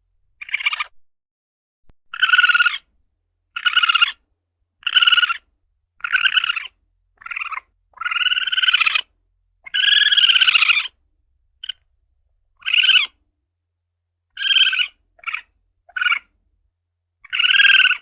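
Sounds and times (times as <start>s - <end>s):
civet calling: 0.4s - 1.0s, 2.1s - 2.9s, 3.5s - 4.2s, 4.8s - 11.0s, 11.6s - 11.9s, 12.6s - 13.2s, 14.3s - 16.4s, 17.2s - 18.0s.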